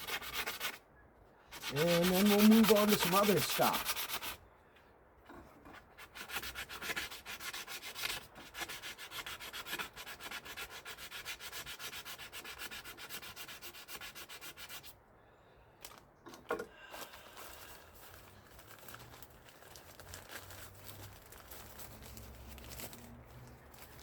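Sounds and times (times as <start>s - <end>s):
hand sanding metal: 0.0s - 0.8s, 1.5s - 4.4s, 6.0s - 14.9s.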